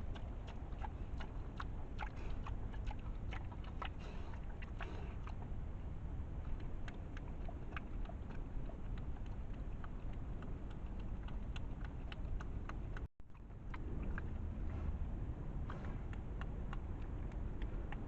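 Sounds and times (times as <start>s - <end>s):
steady low rumble: 0.0s - 18.0s
wild boar crunching food: 0.0s - 18.0s.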